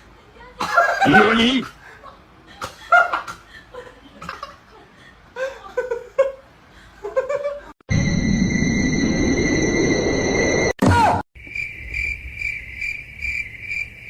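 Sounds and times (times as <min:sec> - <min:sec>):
person laughing: 0:00.6 - 0:01.9
cricket chirring: 0:11.4 - 0:14.0.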